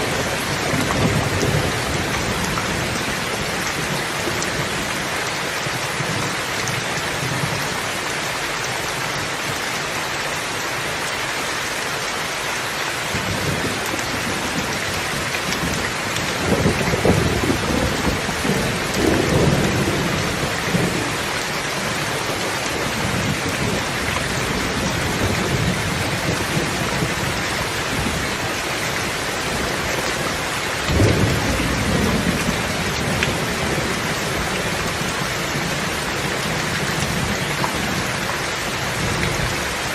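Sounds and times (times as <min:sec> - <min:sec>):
thunder rumbling: 0:00.0 - 0:04.8, 0:13.2 - 0:22.0, 0:22.7 - 0:38.2
heavy rainfall: 0:00.0 - 0:39.9.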